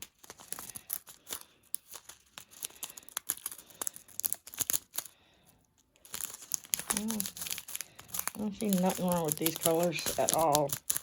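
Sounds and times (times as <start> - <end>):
plastic packs crinkling: 0.0 - 11.0.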